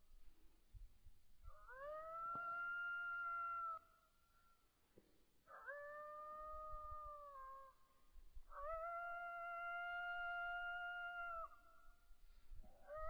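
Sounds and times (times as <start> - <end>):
coyote howls: 1.5 - 3.9, 5.5 - 7.8, 8.4 - 11.7.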